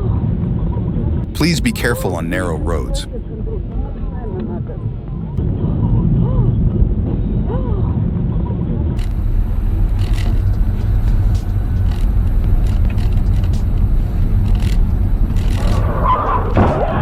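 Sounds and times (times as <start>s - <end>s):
vehicle driving rumble: 9.0s - 17.0s.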